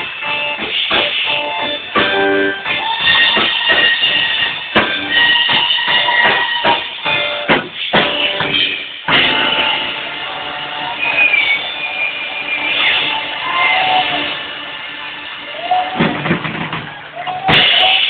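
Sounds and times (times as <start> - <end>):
hard accented band hits: 0.0 - 9.9
live soul band playing: 0.0 - 16.9
drum kit: 0.0 - 18.0.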